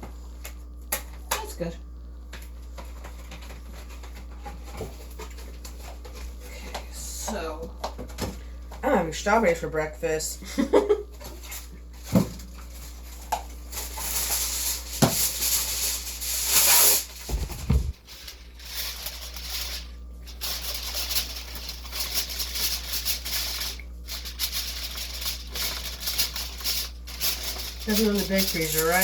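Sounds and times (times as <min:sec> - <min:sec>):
packaging rustling and crinkling: 0:11.3 - 0:29.0.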